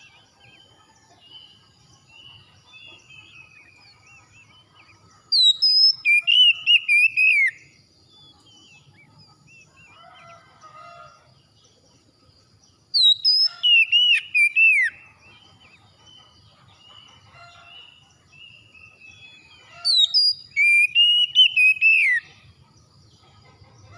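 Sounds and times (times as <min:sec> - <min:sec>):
faint bird chirps: 0:00.0 - 0:23.9
bird whistled song phrase: 0:05.4 - 0:07.6, 0:13.0 - 0:15.0, 0:19.8 - 0:22.3.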